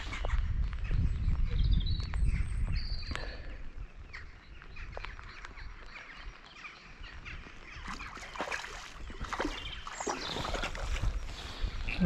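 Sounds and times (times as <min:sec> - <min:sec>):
wind rumble: 0:00.0 - 0:12.0
short ticks and splashes: 0:07.8 - 0:11.1.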